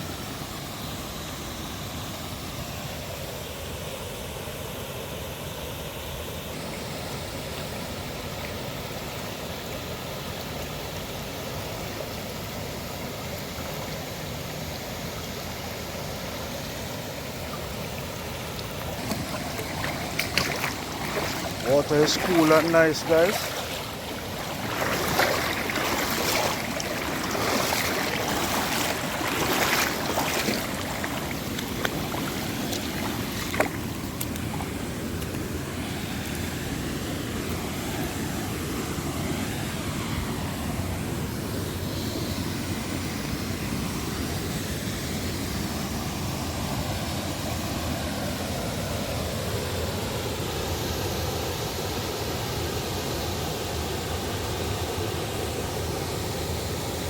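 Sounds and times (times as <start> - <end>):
waterfall roaring: 15.8 - 37.2.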